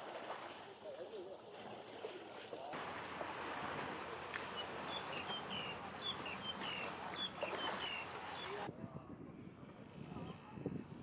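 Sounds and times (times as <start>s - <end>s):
small bird chirping: 4.8s - 8.7s.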